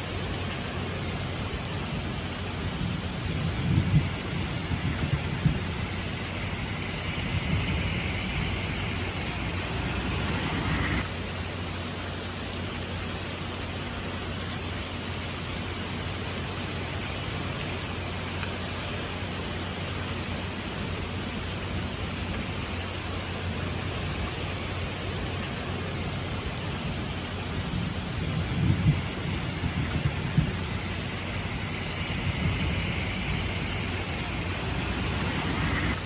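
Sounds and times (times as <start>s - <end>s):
steady rain falling: 0.0s - 36.0s
low thunder rumble: 2.0s - 11.1s, 26.8s - 36.0s.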